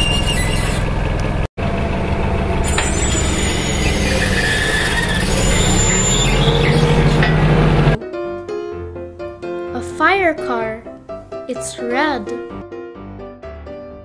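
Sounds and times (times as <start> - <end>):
forklift engine under load: 0.0 - 8.0
thin high whine: 2.2 - 8.0.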